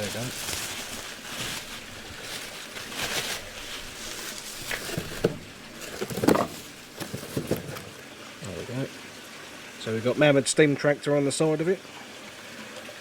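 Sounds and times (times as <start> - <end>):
wrapping rustling: 0.0 - 8.0.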